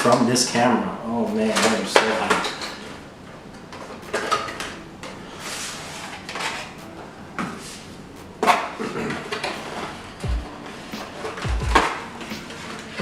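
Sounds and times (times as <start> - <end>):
plastic and cardboard rustling: 3.6 - 13.0.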